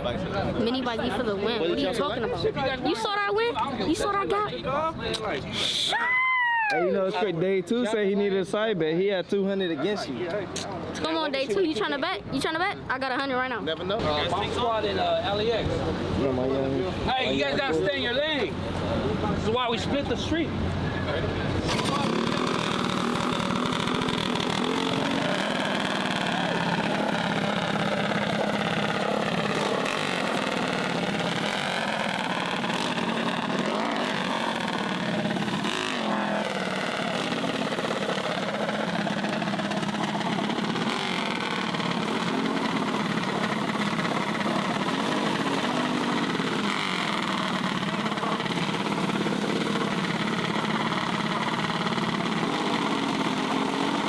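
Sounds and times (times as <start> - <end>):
mini bike engines revving: 21.6 - 54.0.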